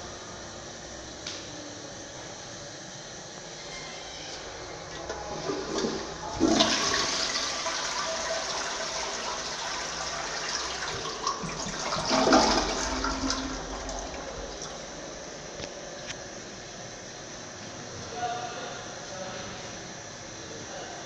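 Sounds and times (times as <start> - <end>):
toilet flushing: 4.1 - 15.7.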